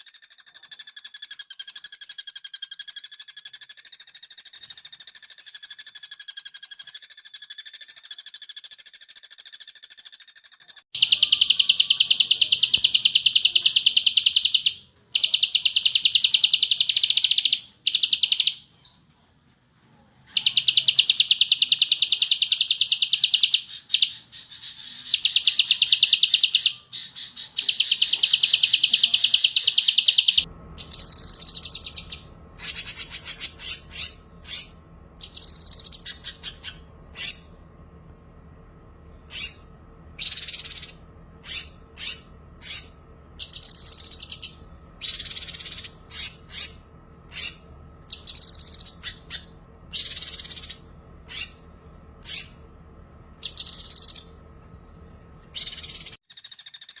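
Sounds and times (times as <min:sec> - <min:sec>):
bird chirps and whistles: 0:00.0 - 0:19.0, 0:20.3 - 0:37.5, 0:39.3 - 0:51.6, 0:52.2 - 0:52.6, 0:53.4 - 0:54.3, 0:55.5 - 0:57.0
steady background hum: 0:00.0 - 0:57.0
songbird rapid trills: 0:20.3 - 0:37.5, 0:39.3 - 0:51.6.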